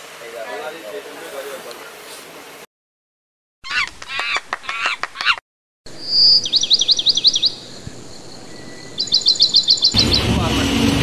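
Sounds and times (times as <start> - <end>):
bird chirping and trilling: 3.6 - 10.3.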